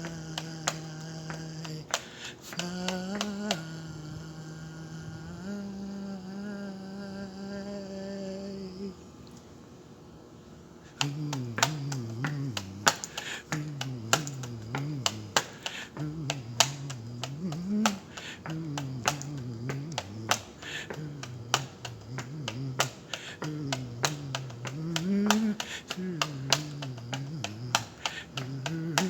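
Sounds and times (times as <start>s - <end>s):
man humming: 0.0s - 9.1s, 10.9s - 29.0s
sharp clicks: 11.0s - 29.0s.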